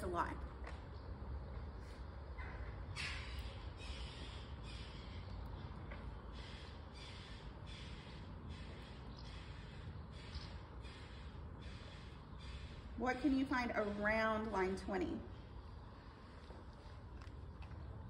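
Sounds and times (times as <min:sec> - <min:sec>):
crow cawing: 0:03.0 - 0:05.3, 0:06.2 - 0:13.0.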